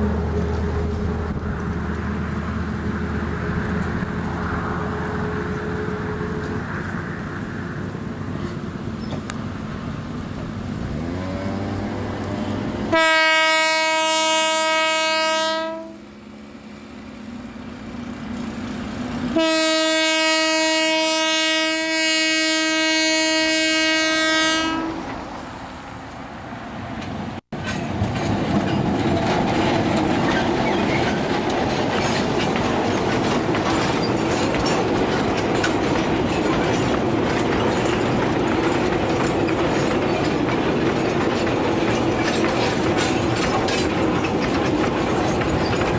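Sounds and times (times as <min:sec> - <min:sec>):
wheels clacking on rail joints: 0:00.0 - 0:21.6, 0:23.7 - 0:45.9
train running past: 0:00.0 - 0:45.9
train horn blasts: 0:10.9 - 0:16.1, 0:19.3 - 0:25.1.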